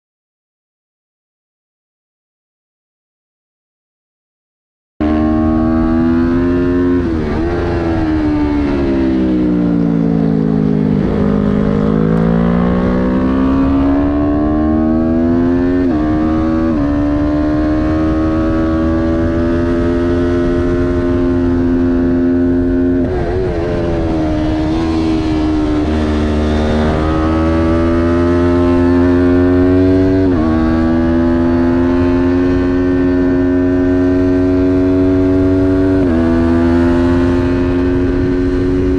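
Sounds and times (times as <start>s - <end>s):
motorcycle engine at racing revs: 5.0s - 38.9s
wind rushing: 10.3s - 38.9s.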